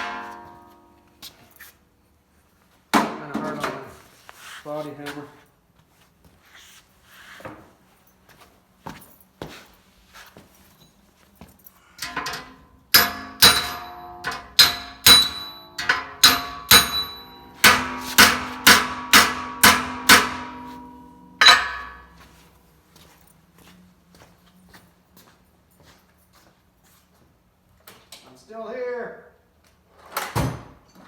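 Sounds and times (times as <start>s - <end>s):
hammer striking sheet metal: 0.0s - 0.9s, 12.9s - 22.2s.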